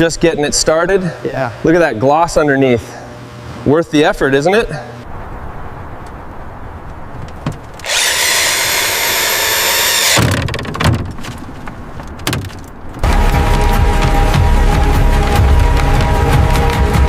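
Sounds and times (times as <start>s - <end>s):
loud rasping hiss: 7.8s - 10.3s
knocks and clatter: 10.1s - 13.4s
music: 13.0s - 17.0s.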